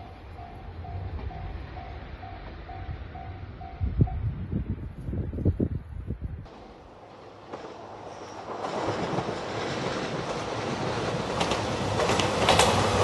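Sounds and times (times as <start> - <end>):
diesel train running past: 0.0 - 5.4, 6.5 - 13.0
wheels clicking over rail joints: 6.5 - 13.0.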